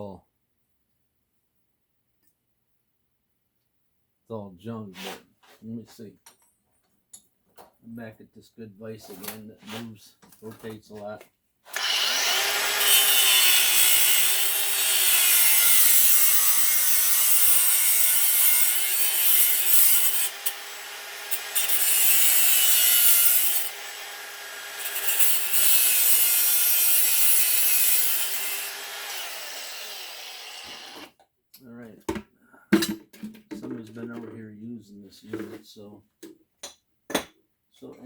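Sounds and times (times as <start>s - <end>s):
saw cutting through metal: 11.7s - 31.1s.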